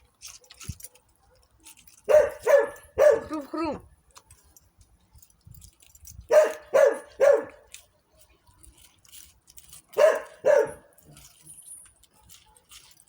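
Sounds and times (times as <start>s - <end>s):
dog barking: 2.1s - 3.5s, 6.3s - 7.6s, 10.0s - 10.9s.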